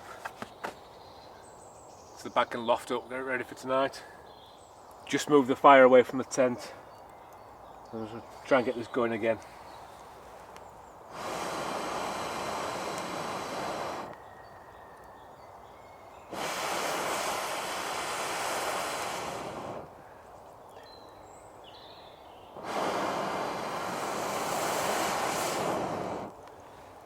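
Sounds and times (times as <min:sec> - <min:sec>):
breath blown through tube: 0:11.1 - 0:14.2, 0:16.3 - 0:19.9, 0:22.6 - 0:26.4.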